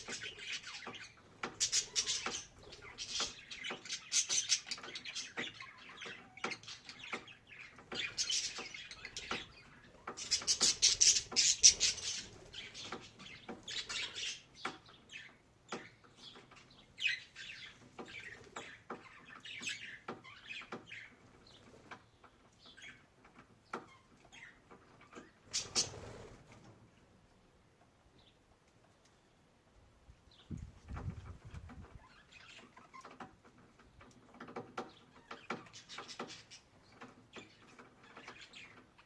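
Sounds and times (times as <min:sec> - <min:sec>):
budgerigar chirping and warbling: 0:01.6 - 0:03.4.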